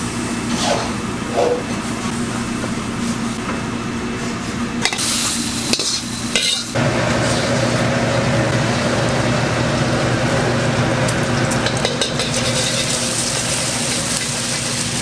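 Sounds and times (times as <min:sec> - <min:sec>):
food sizzling in a wok: 0:04.9 - 0:15.0.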